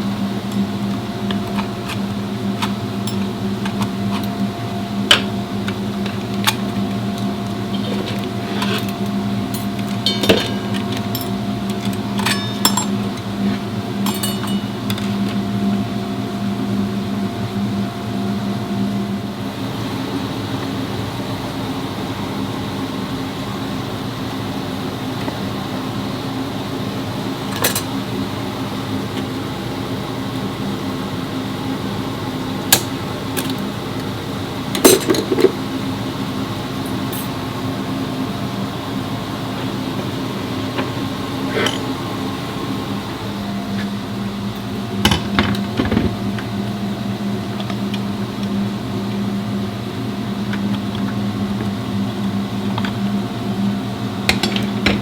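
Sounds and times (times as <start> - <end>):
steady mechanical hum: 0.0 - 55.0
metallic clinks and knocks: 9.6 - 13.3, 14.0 - 15.2.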